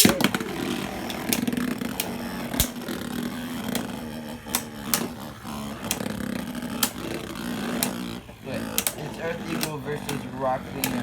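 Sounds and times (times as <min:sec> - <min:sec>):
metal tops clacking: 0:00.0 - 0:05.2
spinning tops whirring: 0:00.0 - 0:11.0.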